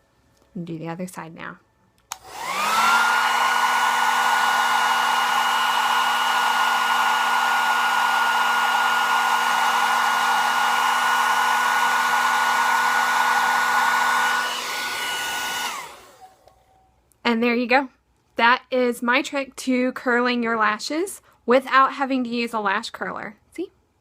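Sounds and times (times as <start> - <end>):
hair dryer running: 2.1 - 16.5.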